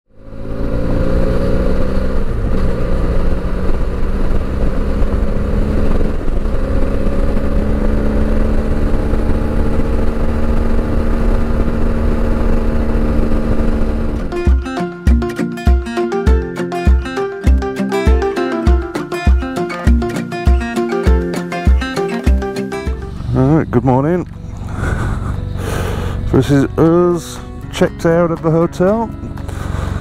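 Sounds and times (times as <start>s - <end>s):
wind and road noise: 0.1s - 17.8s, 18.8s - 30.0s
motorcycle engine cruising: 0.2s - 30.0s
guitar music: 13.8s - 30.0s.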